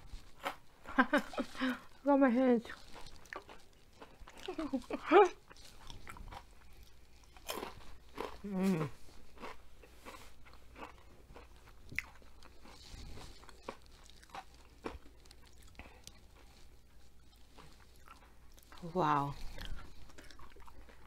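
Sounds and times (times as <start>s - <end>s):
crunchy chewing: 0.0s - 21.0s
person humming mmm: 8.4s - 9.0s.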